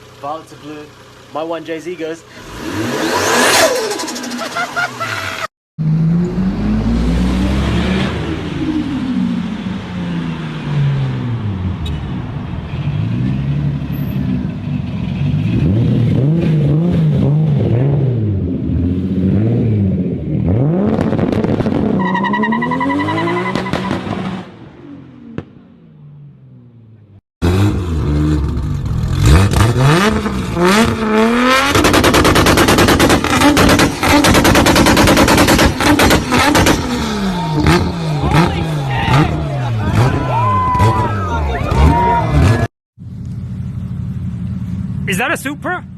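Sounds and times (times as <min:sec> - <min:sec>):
engines revving and accelerating: 0:02.4 - 0:11.8, 0:12.8 - 0:25.4, 0:27.4 - 0:42.7
engine crackling pops: 0:31.7 - 0:36.9.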